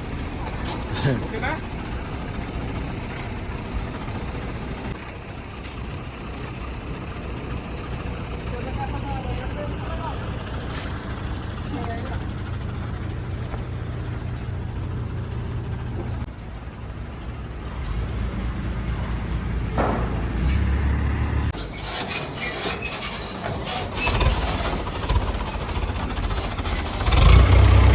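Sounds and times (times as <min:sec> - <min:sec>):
heavy truck engine running: 0:00.0 - 0:27.9
sharp clattering knocks: 0:19.7 - 0:20.7.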